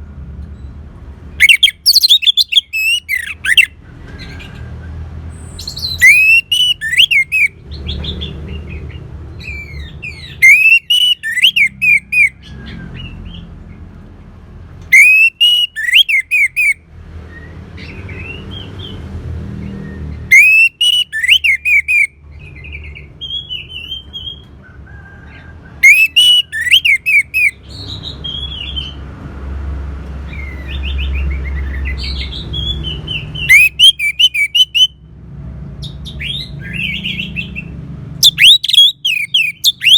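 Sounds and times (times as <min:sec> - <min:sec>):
thrush singing whistled phrases: 0:01.3 - 0:03.8, 0:05.5 - 0:07.6, 0:09.4 - 0:12.4, 0:14.9 - 0:16.8, 0:19.8 - 0:24.4, 0:25.8 - 0:28.8, 0:30.3 - 0:35.0, 0:36.2 - 0:39.9.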